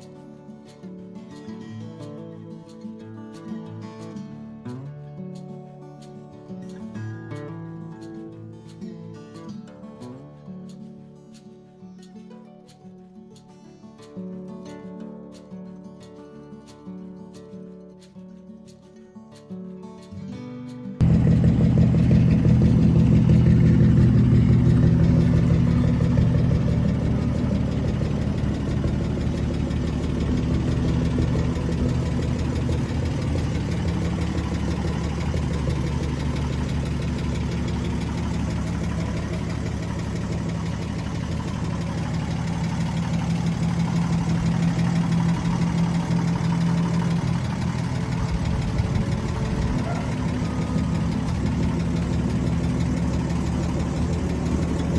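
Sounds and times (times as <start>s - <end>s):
car engine idling: 21.0s - 54.9s.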